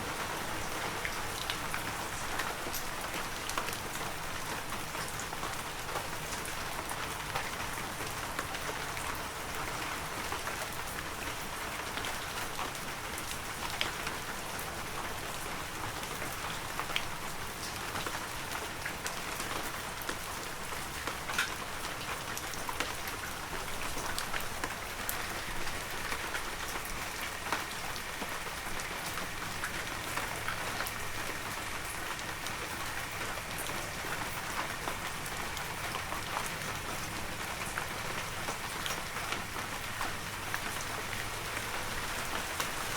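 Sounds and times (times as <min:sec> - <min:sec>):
heavy rain: 0:00.0 - 0:42.9.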